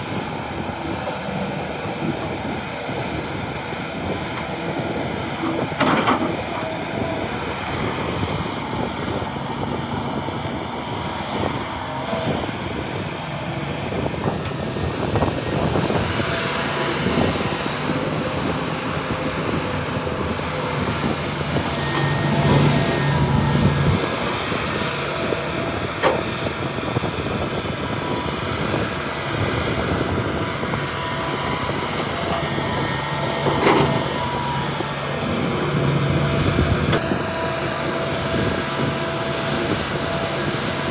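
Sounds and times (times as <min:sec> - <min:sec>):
diesel earthmoving machinery running: 0:00.0 - 0:40.9.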